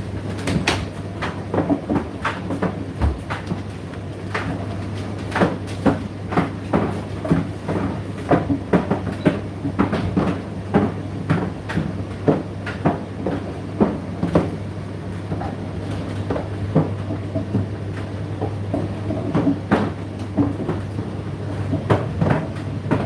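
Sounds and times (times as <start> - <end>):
tumble dryer motor hum: 0.0 - 23.0.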